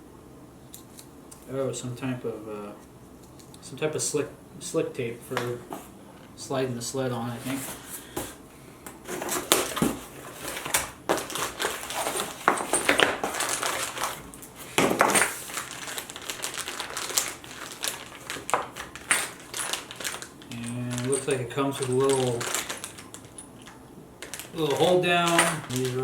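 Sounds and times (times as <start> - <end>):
packaging rustling and crinkling: 9.0 - 26.0
small parts clicking and clattering: 9.3 - 26.0.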